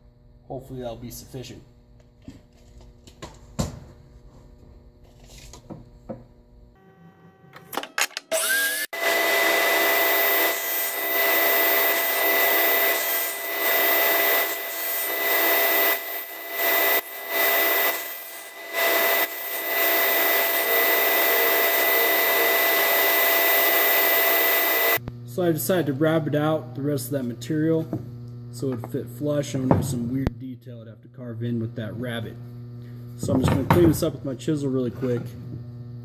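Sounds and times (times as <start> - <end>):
power tool motor cutting wood: 7.5 - 25.0.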